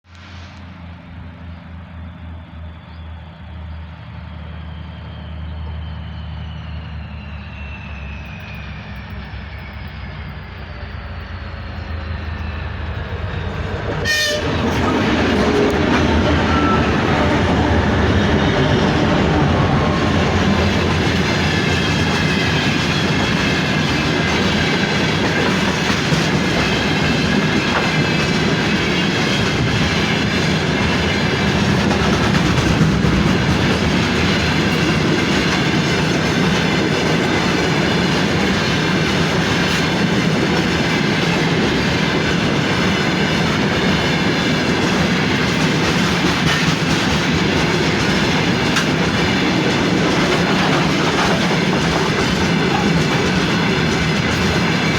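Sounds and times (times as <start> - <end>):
freight train rumbling past: 0.0 - 54.9
wheels clacking over rail joints: 13.2 - 54.9.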